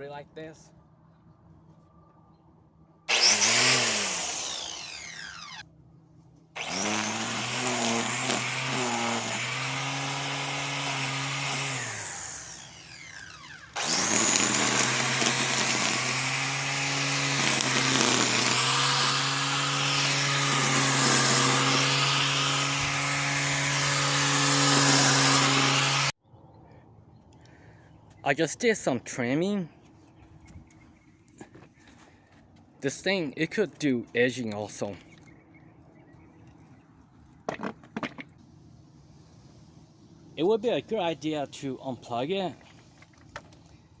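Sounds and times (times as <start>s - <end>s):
string trimmer cutting grass: 3.1s - 5.6s, 6.6s - 26.2s.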